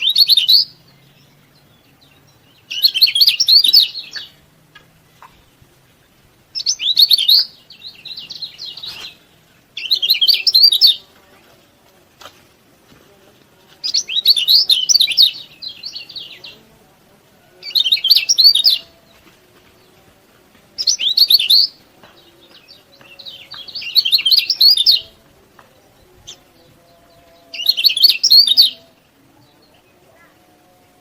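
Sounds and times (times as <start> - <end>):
bird twittering chirps: 0.0 - 11.1, 13.8 - 16.6, 17.6 - 19.0, 20.8 - 25.2, 25.8 - 29.0.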